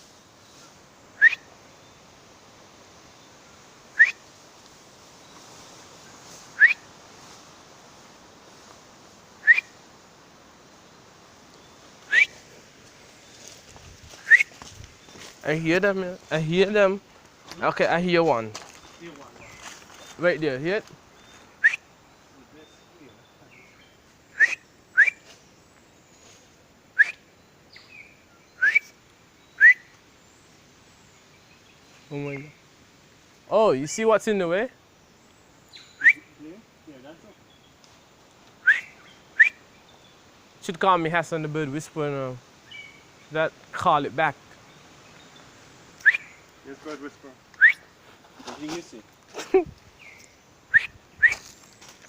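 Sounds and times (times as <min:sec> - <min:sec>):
faint bird chirps: 0:00.0 - 0:02.2, 0:03.0 - 0:04.4, 0:09.3 - 0:09.8, 0:10.8 - 0:16.7, 0:21.1 - 0:32.7, 0:34.8 - 0:40.7, 0:44.5 - 0:48.0, 0:49.5 - 0:52.0
person whistling rising calls: 0:01.2 - 0:01.5, 0:04.0 - 0:04.2, 0:06.6 - 0:06.8, 0:09.4 - 0:09.7, 0:12.1 - 0:12.4, 0:14.2 - 0:14.6, 0:21.6 - 0:21.9, 0:24.3 - 0:25.3, 0:27.0 - 0:27.2, 0:28.6 - 0:28.9, 0:29.6 - 0:29.9, 0:36.0 - 0:36.3, 0:38.6 - 0:39.6, 0:46.0 - 0:46.3, 0:47.6 - 0:47.9, 0:50.7 - 0:51.5.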